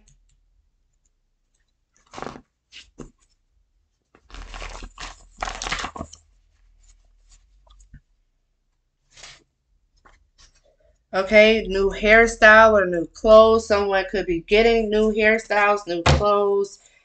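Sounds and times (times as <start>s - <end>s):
cards being shuffled: 4.2s - 6.2s.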